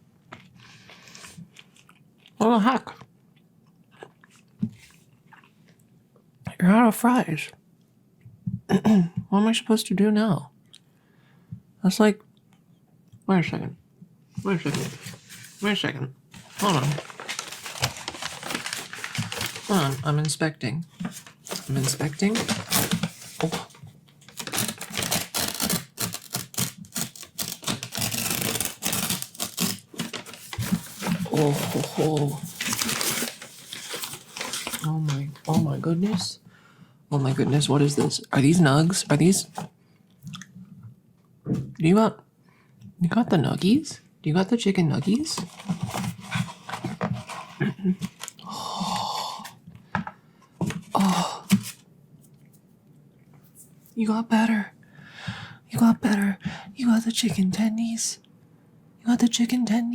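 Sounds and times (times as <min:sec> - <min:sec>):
paper packaging rustling: 0:14.5 - 0:36.4, 0:45.2 - 0:48.4, 0:50.6 - 0:51.8.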